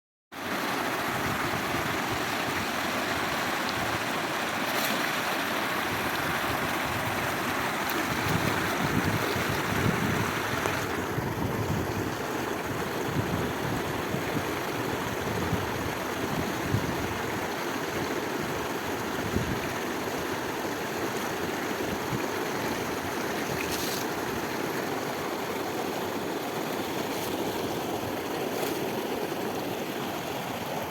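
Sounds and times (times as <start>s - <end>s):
rushing water: 0.4s - 30.9s
wind on microphone: 5.7s - 20.6s, 21.3s - 24.6s.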